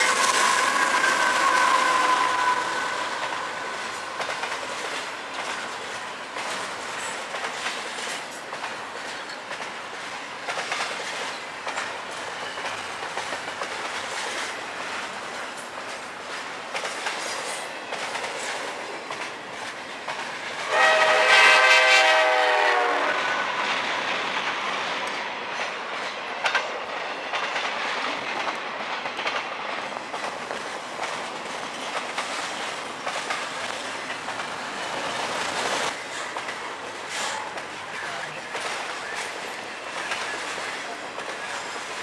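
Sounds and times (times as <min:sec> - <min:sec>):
locomotive air horn: 0:00.0 - 0:03.2, 0:20.6 - 0:23.5
wheels clicking over rail joints: 0:00.0 - 0:20.6, 0:23.7 - 0:42.0.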